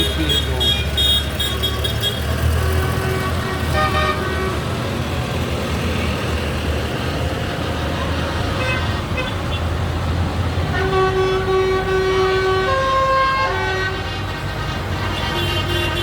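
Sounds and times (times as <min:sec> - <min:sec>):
vehicle horn toot: 0:00.0 - 0:02.2, 0:02.8 - 0:04.6, 0:10.7 - 0:14.1, 0:15.1 - 0:16.0
tractor engines rumbling: 0:00.0 - 0:16.0.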